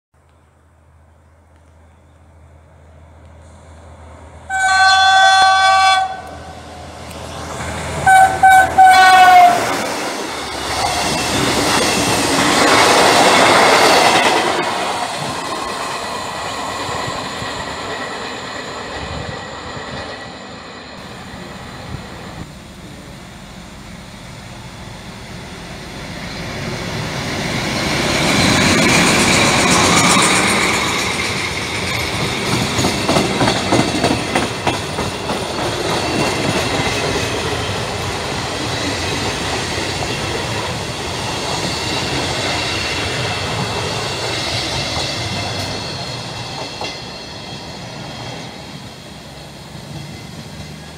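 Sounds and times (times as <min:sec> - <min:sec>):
diesel locomotive passing: 0:00.4 - 0:50.9
train rolling rumble: 0:01.2 - 0:50.9
train wheels clattering over rail joints: 0:27.8 - 0:48.6.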